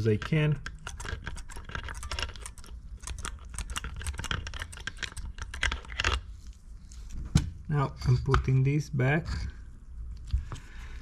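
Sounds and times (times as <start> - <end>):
small parts clicking and rattling: 0.0 - 6.2.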